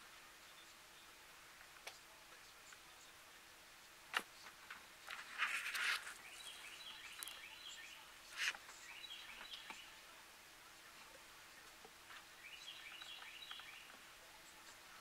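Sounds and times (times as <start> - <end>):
small bird calling: 4.8 - 10.0, 12.2 - 14.0.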